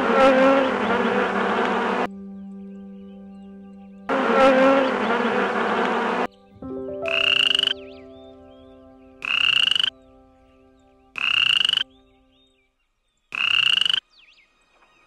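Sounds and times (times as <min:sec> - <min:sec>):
faint high chirps: 0:06.3 - 0:12.5
pulsed croaking calls: 0:06.9 - 0:12.2.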